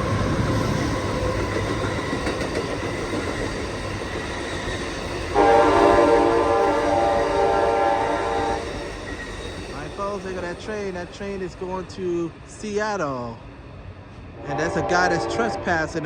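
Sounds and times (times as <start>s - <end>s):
train wheels rumbling on rail: 0.0s - 16.0s
train air horn blast: 5.3s - 8.8s, 14.4s - 16.0s.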